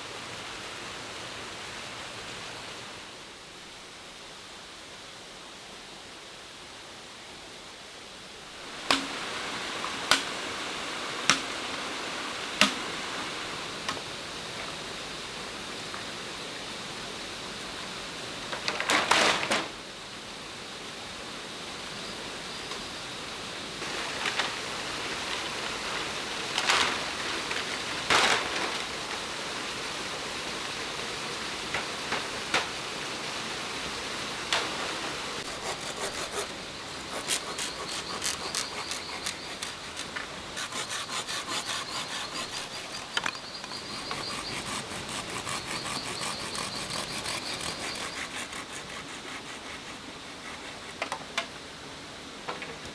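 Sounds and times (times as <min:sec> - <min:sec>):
steady hiss: 0:00.0 - 0:52.9
hand saw sawing wood: 0:35.4 - 0:51.3.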